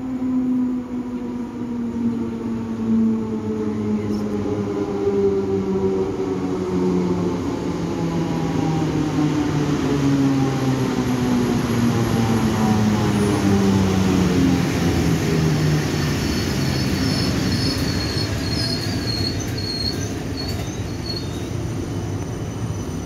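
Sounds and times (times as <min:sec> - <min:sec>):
train rolling rumble: 0:00.0 - 0:23.0.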